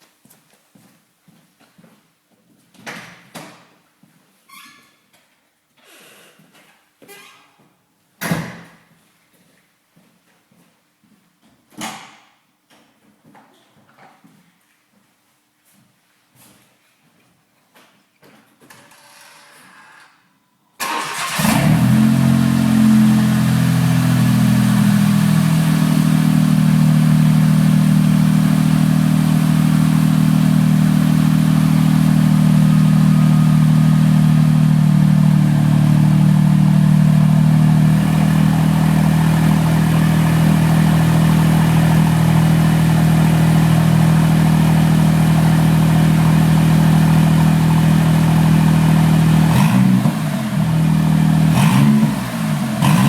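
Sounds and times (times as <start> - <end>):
car engine idling: 21.0 - 53.0.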